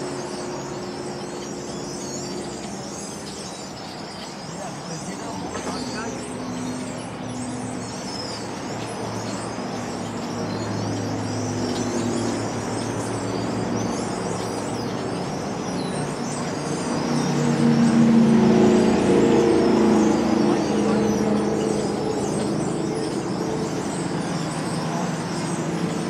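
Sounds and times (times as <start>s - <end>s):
flock of birds chattering: 0.0s - 26.0s
road traffic hum: 0.0s - 26.0s
vehicle passing: 15.0s - 26.0s.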